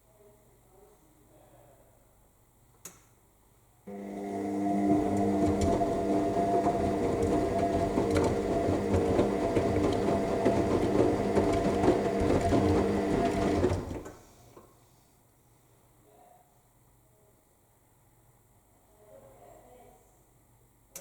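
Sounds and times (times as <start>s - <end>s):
laundry churning in drum: 3.9s - 14.1s
washing machine motor hum: 3.9s - 14.1s.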